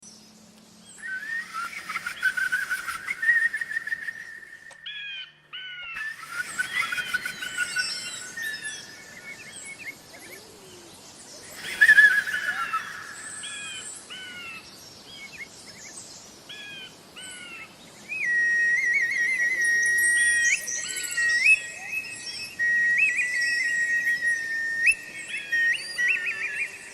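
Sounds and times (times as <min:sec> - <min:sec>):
bird chirps and trills: 0:00.8 - 0:26.9
steady whistling tone: 0:01.0 - 0:05.0, 0:06.0 - 0:09.8, 0:11.4 - 0:13.9, 0:18.2 - 0:26.9.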